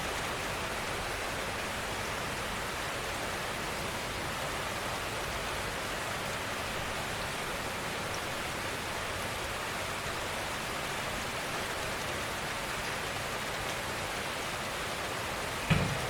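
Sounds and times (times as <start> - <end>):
gentle rain: 0.0 - 16.0
dull thump: 15.7 - 16.0.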